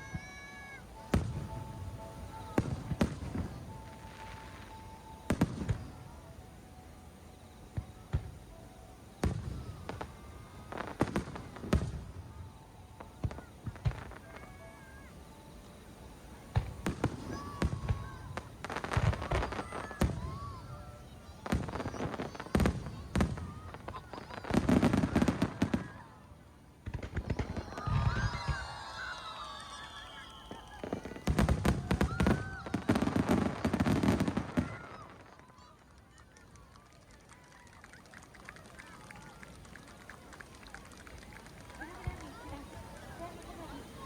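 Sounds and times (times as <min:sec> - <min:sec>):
fireworks bursting: 0:00.0 - 0:44.0.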